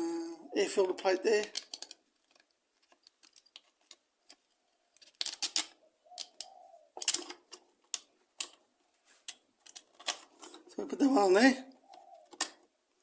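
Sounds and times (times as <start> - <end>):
small plastic parts clicking: 1.4 - 8.6, 9.2 - 10.7, 11.9 - 12.7.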